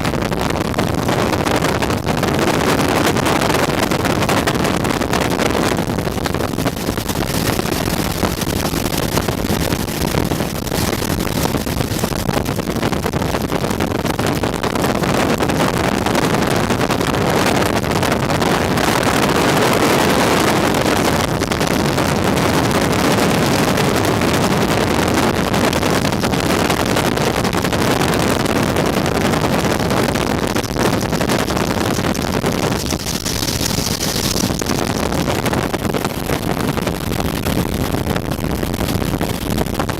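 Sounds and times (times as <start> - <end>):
wind buffeting microphone: 0.0 - 39.9
helicopter engine and rotor: 32.5 - 35.1.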